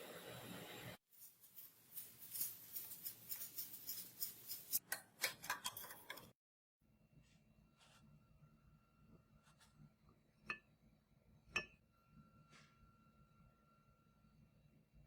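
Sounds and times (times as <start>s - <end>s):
clicks and scrapes on metal: 1.6s - 6.4s.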